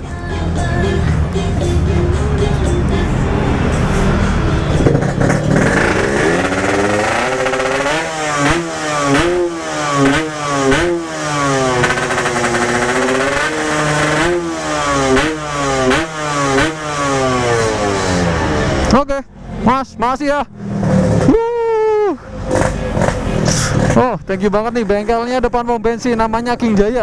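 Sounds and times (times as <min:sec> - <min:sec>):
two-stroke motorcycle engine revving: 0:01.2 - 0:19.0, 0:20.5 - 0:21.4, 0:22.3 - 0:24.3.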